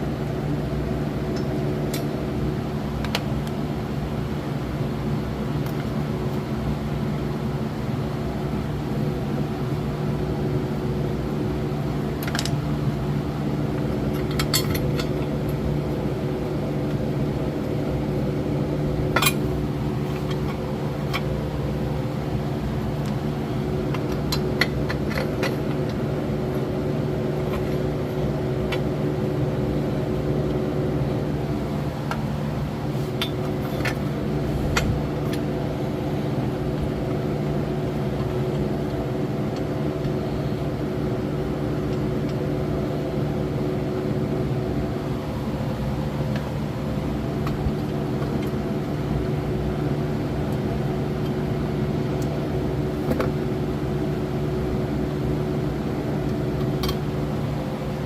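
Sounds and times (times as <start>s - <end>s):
machine humming: 10.6s - 47.9s.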